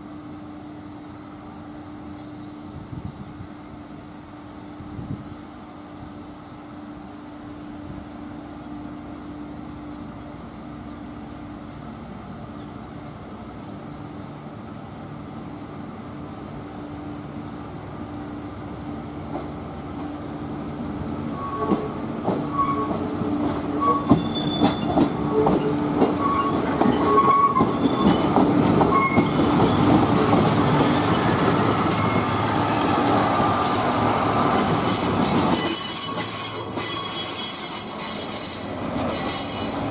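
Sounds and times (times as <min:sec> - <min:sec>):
train wheels clacking over rail joints: 0:21.6 - 0:31.2
high-pitched wheel squeal: 0:22.5 - 0:23.0, 0:23.8 - 0:28.3, 0:30.9 - 0:32.6, 0:34.7 - 0:39.9.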